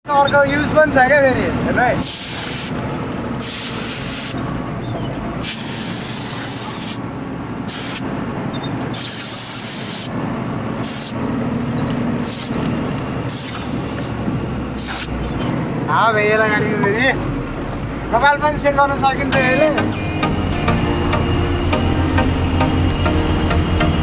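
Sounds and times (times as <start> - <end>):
truck engine running: 0.1 - 24.0
compressed air hissing: 2.0 - 2.8, 3.4 - 4.4, 5.4 - 7.0, 7.7 - 8.1, 8.9 - 10.2, 10.8 - 11.2, 12.2 - 12.6, 13.3 - 14.2, 14.8 - 15.2.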